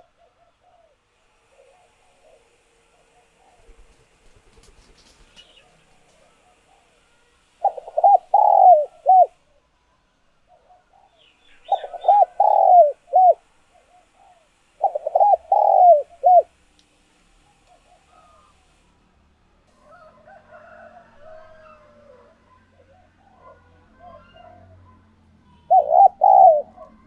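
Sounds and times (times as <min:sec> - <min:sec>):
dove cooing: 0:00.0 - 0:09.4, 0:10.5 - 0:16.6, 0:17.5 - 0:18.7, 0:25.5 - 0:27.0.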